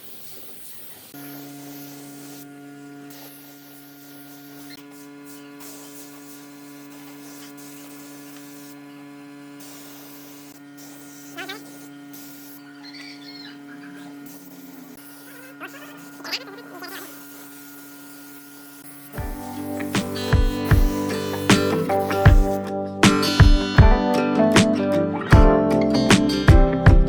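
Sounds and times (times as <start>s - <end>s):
electrical hum: 1.2s - 24.3s
wavering chirp: 12.6s - 14.2s.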